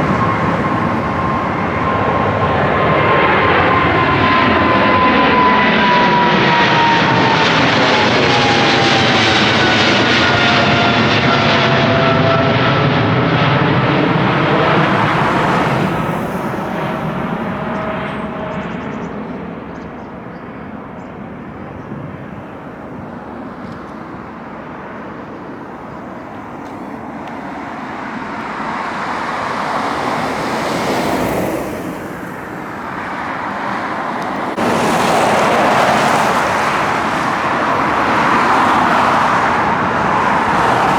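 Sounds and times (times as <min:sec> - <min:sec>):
jet airliner taking off overhead: 0:00.0 - 0:40.9.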